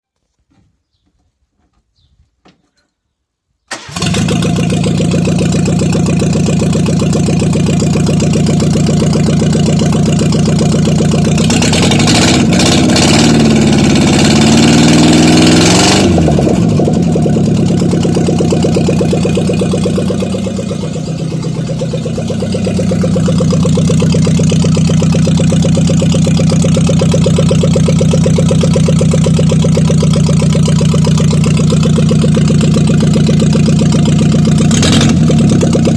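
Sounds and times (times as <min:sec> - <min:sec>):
unmuffled car engine revving: 0:10.9 - 0:29.9, 0:30.7 - 0:35.9.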